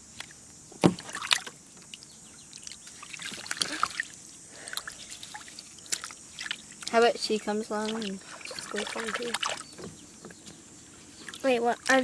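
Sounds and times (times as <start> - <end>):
small splashes: 0.1 - 12.0.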